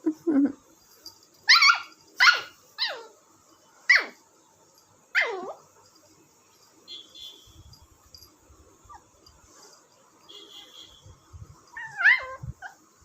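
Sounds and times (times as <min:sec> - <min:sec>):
puppy yelping barks: 0:01.5 - 0:03.1, 0:03.9 - 0:04.2, 0:05.2 - 0:05.6, 0:11.7 - 0:12.8.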